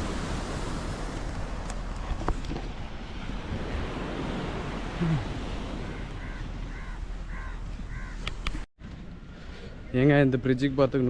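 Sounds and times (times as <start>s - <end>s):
wind: 0.0s - 11.0s
crow cawing: 5.8s - 8.3s.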